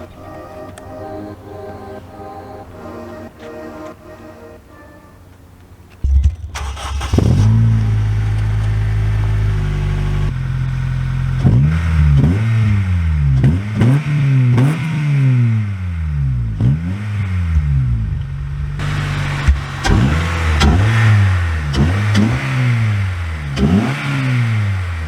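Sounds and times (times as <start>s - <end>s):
car engine starting and revving: 6.2s - 25.0s.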